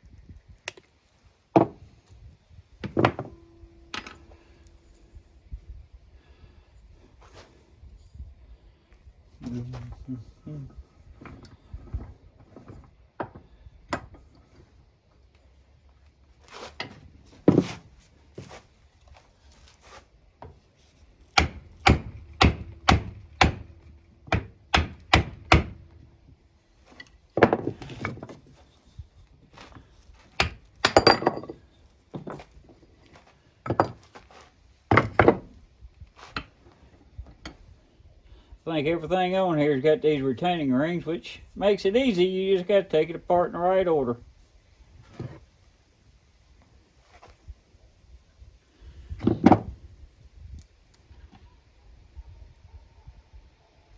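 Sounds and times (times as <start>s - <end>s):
hammer knocks on metal parts: 21.4s - 23.7s, 34.9s - 35.4s
loose parts rattling: 26.9s - 34.3s, 34.9s - 35.6s.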